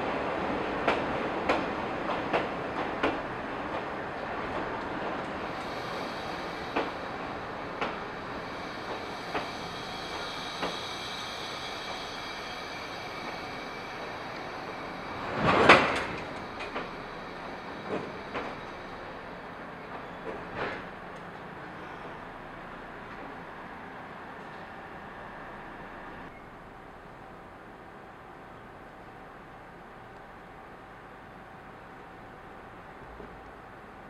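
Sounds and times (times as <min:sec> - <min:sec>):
train wheels rumbling on rail: 0:00.0 - 0:34.0
wheels clicking over rail joints: 0:15.4 - 0:17.1.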